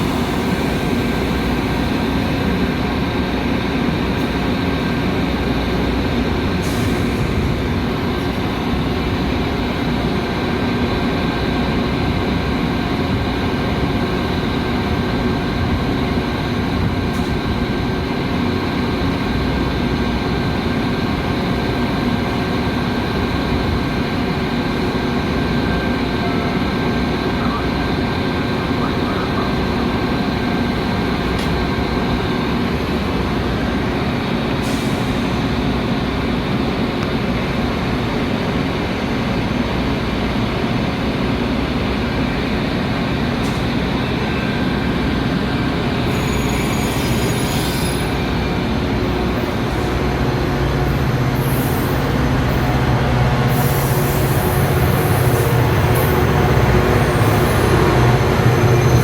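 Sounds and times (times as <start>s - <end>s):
train rolling on rails: 0.0s - 59.0s
wheel squeals: 46.0s - 48.2s
low engine drone: 47.8s - 59.0s.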